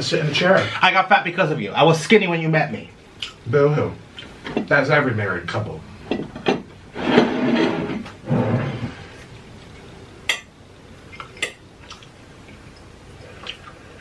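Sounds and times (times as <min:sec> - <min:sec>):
dishes and cutlery clinking: 0:06.1 - 0:08.0.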